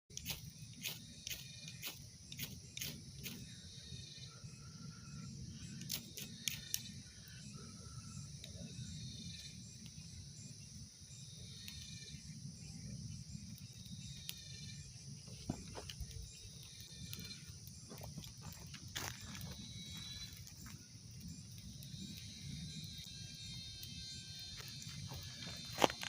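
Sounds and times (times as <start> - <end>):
insects chirping: 0.1 - 26.0
sharp clicks: 5.8 - 7.0.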